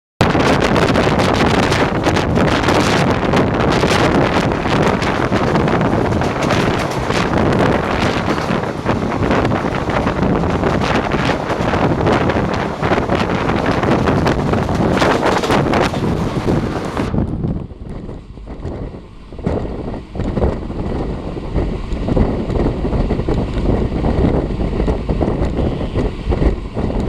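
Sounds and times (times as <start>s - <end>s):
wind buffeting microphone: 0.2s - 27.0s
train wheels clattering: 0.3s - 17.1s.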